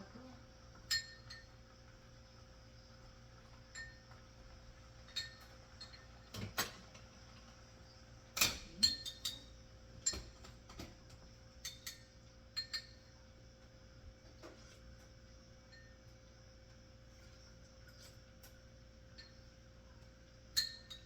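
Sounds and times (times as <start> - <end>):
utensil clinking on dishes: 5.1 - 7.0, 8.4 - 11.0, 11.6 - 13.1, 20.5 - 21.0.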